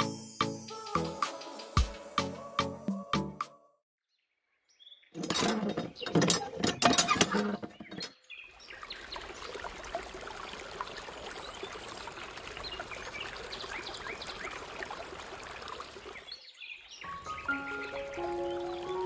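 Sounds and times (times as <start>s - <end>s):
birds chirping: 4.6s - 9.3s, 16.0s - 19.0s.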